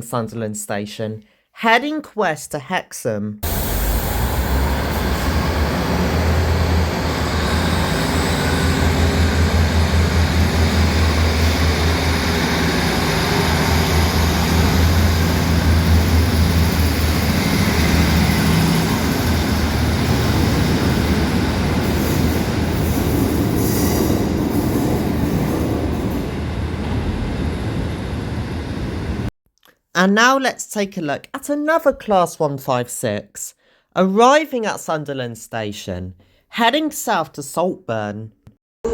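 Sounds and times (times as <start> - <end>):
diesel engine throbbing: 3.4 - 23.6
train wheels on rails: 3.4 - 29.3.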